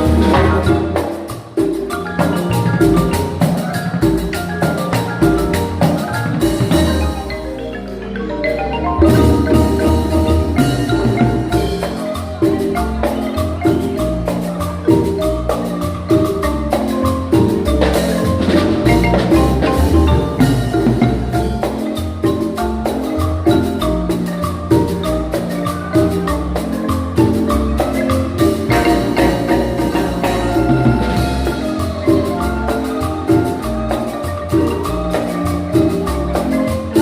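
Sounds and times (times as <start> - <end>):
marimba ensemble playing: 0.0 - 37.0
deep bass line: 8.4 - 11.8, 17.9 - 21.6.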